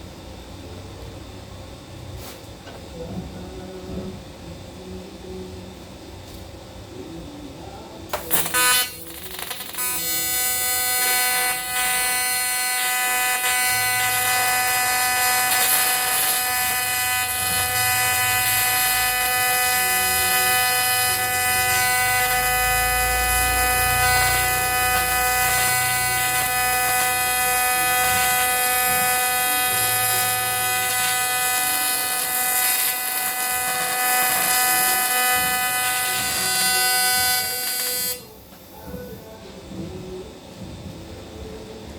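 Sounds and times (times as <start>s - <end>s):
electric motor whining: 8.2s - 38.4s.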